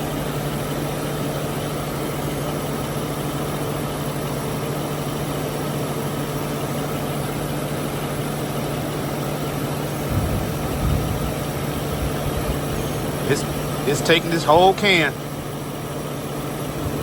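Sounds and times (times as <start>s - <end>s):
car engine idling: 0.0s - 17.0s
low rumble: 10.0s - 13.9s.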